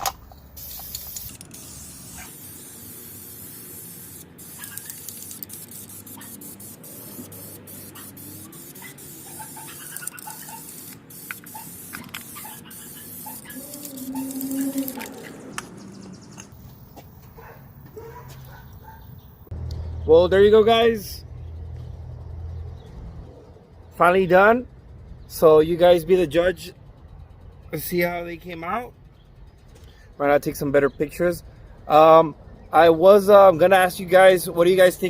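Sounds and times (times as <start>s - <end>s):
aerosol spray can hissing: 0.6s - 15.3s.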